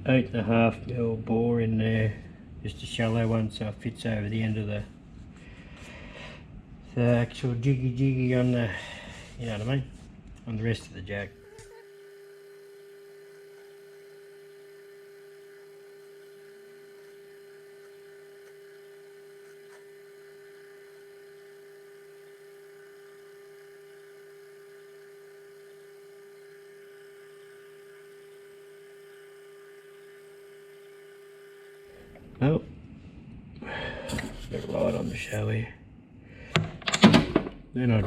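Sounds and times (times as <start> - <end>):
metal lathe humming: 11.2 - 32.6, 34.0 - 35.6.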